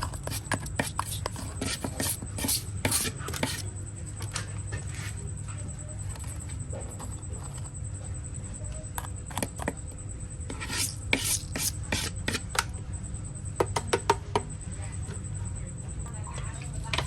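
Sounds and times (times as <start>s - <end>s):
scraping on model bus: 10.5s - 12.4s.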